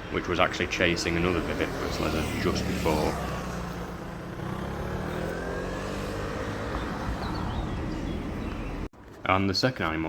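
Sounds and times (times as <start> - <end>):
traffic hum: 0.0 - 10.0
vehicle engine passing: 0.9 - 8.9.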